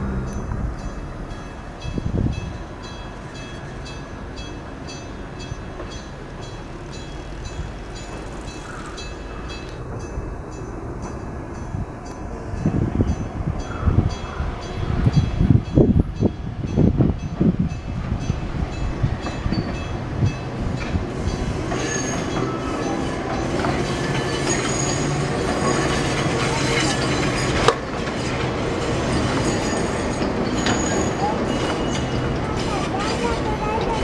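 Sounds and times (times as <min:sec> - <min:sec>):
train rumbling past: 0:00.0 - 0:34.0
high thin wheel squeal: 0:21.2 - 0:28.4, 0:29.0 - 0:34.0.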